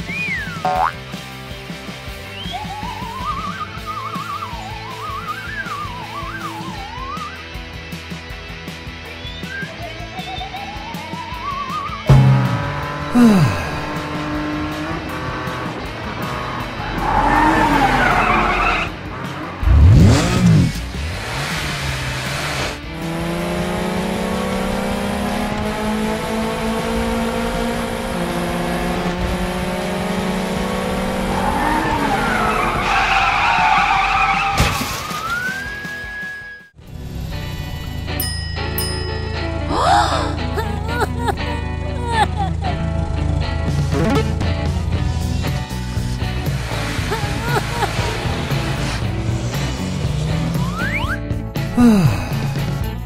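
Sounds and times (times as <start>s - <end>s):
background music: 0.0s - 26.5s, 30.2s - 53.0s
cartoon tires squealing: 17.0s - 18.9s, 31.3s - 36.5s.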